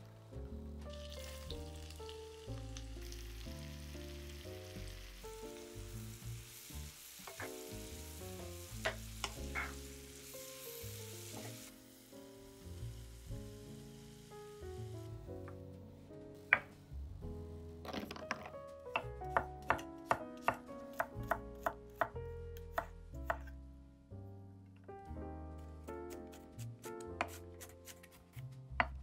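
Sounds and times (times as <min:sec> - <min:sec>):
soft background music: 0:00.0 - 0:29.0
food sizzling in a pan: 0:00.8 - 0:15.1.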